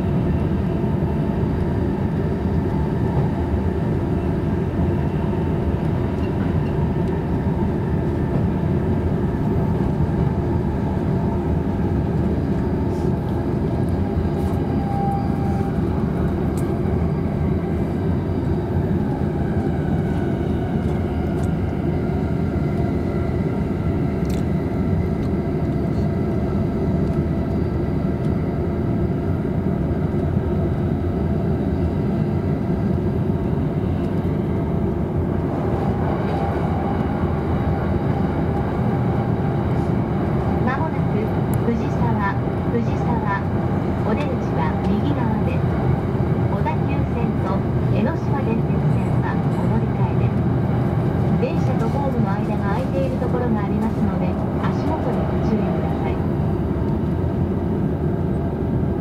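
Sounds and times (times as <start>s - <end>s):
wheels rumbling on rail: 31.2s - 59.0s.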